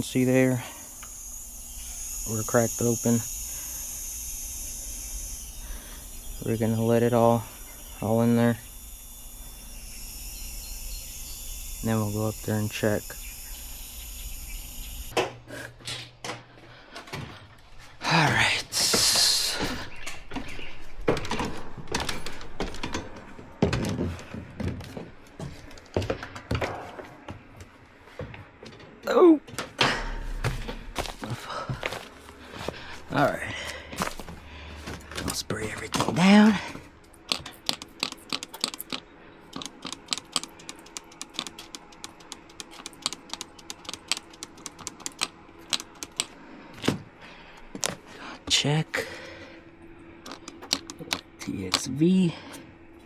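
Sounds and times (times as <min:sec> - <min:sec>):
faint steady hum: 0:00.0 - 0:15.2
irregular knocks and thunks: 0:29.5 - 0:32.8.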